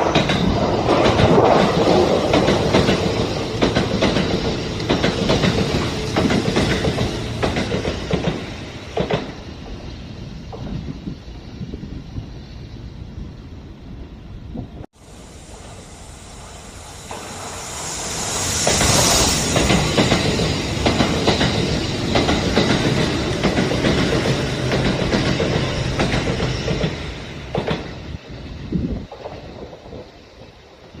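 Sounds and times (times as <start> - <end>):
wheel clacks over rail joints: 0.0 - 9.4
electric train passing: 0.0 - 31.0.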